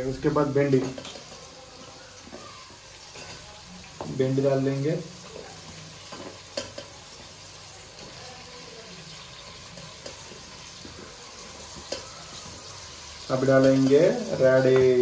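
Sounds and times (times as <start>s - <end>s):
vegetables sizzling in oil: 0.0s - 15.0s
spoon clinking against pot: 6.1s - 7.0s, 11.7s - 12.5s.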